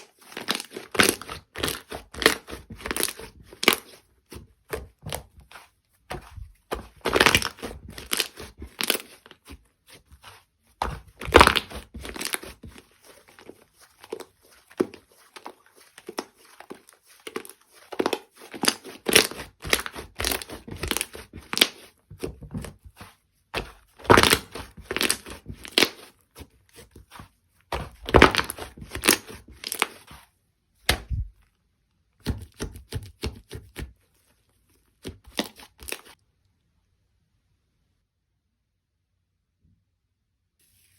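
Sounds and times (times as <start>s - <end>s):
slime squishing and popping: 0.3s - 3.9s, 6.2s - 9.2s, 10.8s - 12.9s, 17.2s - 21.9s, 23.6s - 26.1s, 27.7s - 30.1s.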